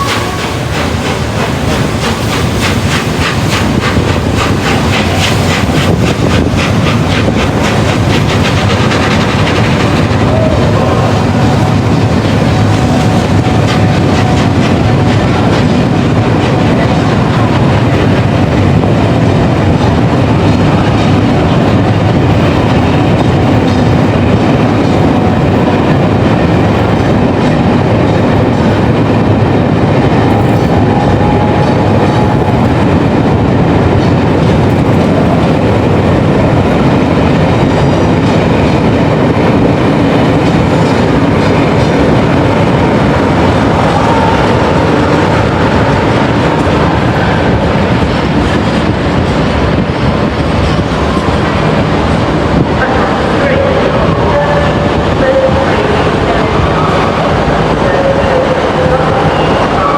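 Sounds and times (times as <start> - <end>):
wheels clacking over track joints: 0.0 - 12.8
train rumbling past: 0.0 - 59.9.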